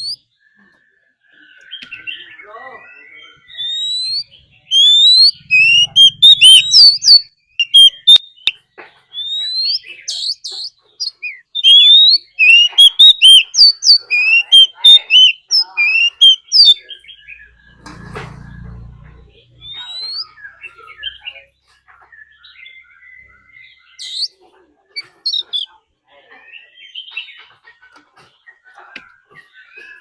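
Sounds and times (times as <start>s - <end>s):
bird singing loud whistles: 2.9s - 8.5s, 9.1s - 17.6s, 19.6s - 21.2s.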